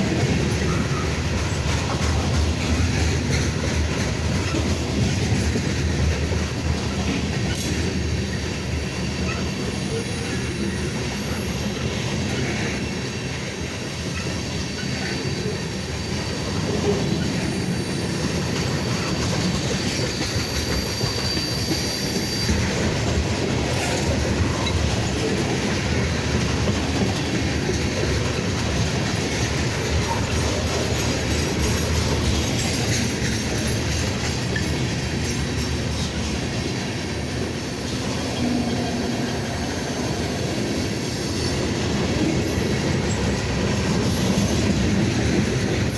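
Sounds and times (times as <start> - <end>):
freight train wheels rumbling: 0.0 - 45.9
high wheel squeal: 7.5 - 23.0, 32.5 - 41.8
clicking over rail joints: 18.3 - 36.8.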